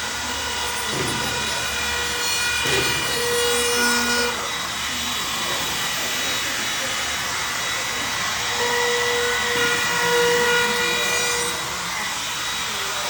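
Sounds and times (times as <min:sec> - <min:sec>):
electric router whining: 0:00.0 - 0:13.0.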